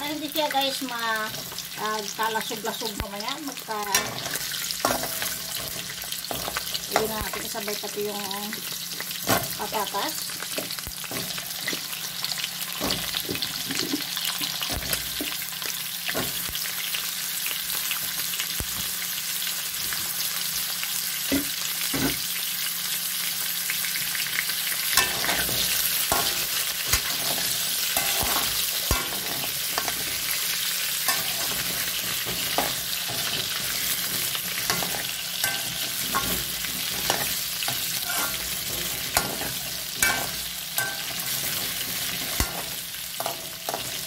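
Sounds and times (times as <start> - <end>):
oil sizzling in a wok: 0.0 - 44.0
metal skimmer scraping pan: 31.0 - 44.0.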